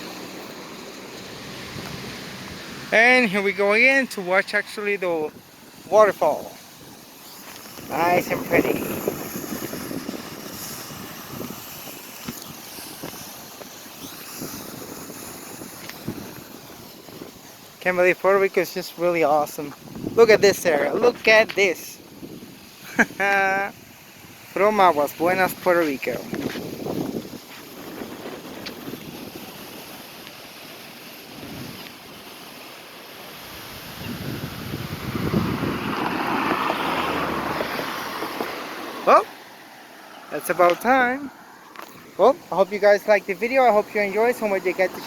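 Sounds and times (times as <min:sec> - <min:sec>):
waterfall and creek rushing: 0:00.0 - 0:14.2, 0:15.3 - 0:45.0
wind on microphone: 0:05.3 - 0:17.8, 0:19.6 - 0:30.2, 0:31.3 - 0:32.4, 0:33.4 - 0:39.2.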